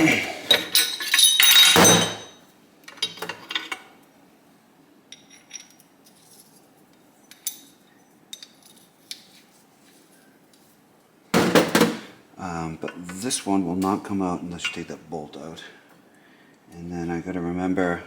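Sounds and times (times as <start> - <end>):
small metal parts clinking: 0.5 - 3.8, 5.1 - 6.6.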